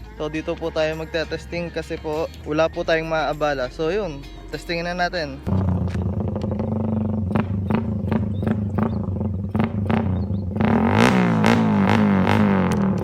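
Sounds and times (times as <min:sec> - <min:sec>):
background music with steady beat: 0:00.0 - 0:13.0
motorcycle engine revving: 0:05.4 - 0:13.0.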